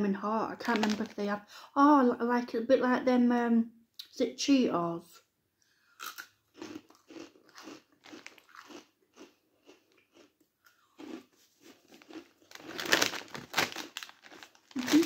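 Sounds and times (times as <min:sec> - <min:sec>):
person chewing crunchy crisps: 0:05.9 - 0:15.0.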